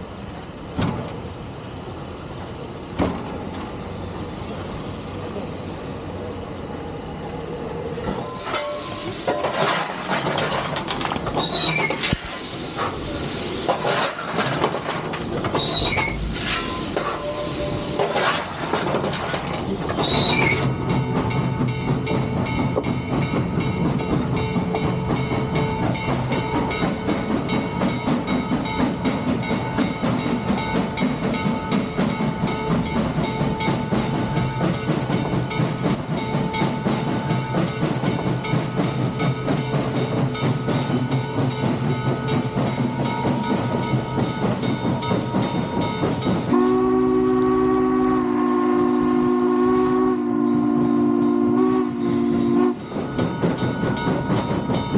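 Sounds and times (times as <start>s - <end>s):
steam train rhythmic clatter: 0.0s - 54.9s
train chime whistle: 16.6s - 18.0s, 46.5s - 53.4s.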